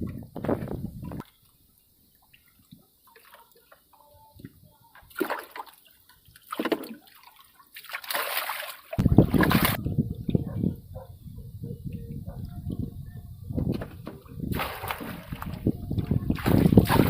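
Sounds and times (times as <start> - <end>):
faint water drips: 1.2 - 9.0
water splashing: 4.9 - 9.8, 14.0 - 17.0.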